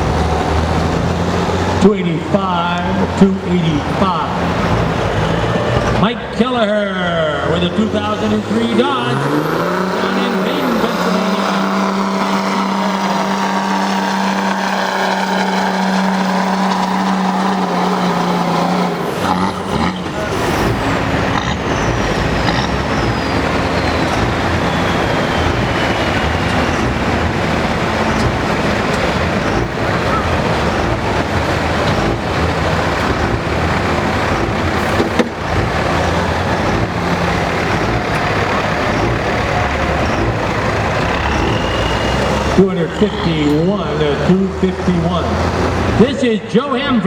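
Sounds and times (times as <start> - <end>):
truck engine revving under load: 0.0 - 47.0
high whistle falling in pitch: 41.2 - 43.6.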